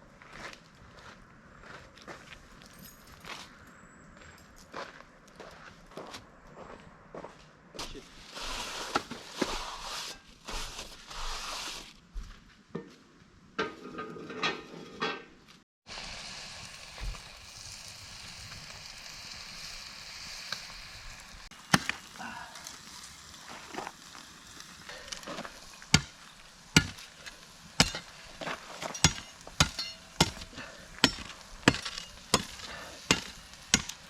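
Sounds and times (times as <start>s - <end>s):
food sizzling over campfire: 15.9s - 34.0s.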